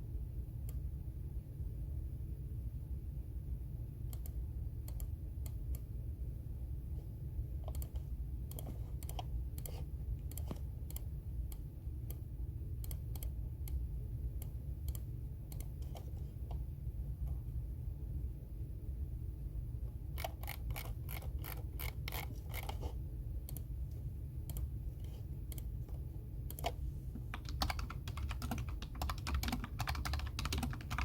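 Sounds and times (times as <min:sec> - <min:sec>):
steady low hum: 0:00.0 - 0:31.0
keyboard keystroke clicks: 0:26.5 - 0:31.0.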